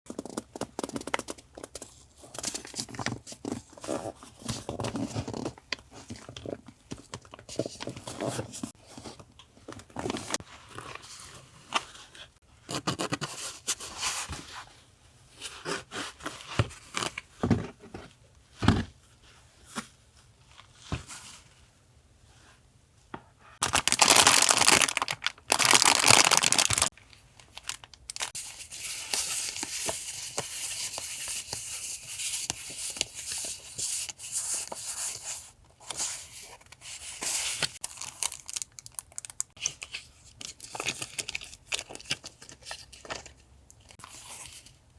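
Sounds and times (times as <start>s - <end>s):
packaging tearing: 23.6s - 26.9s
paper and plastic crinkling: 23.6s - 31.0s.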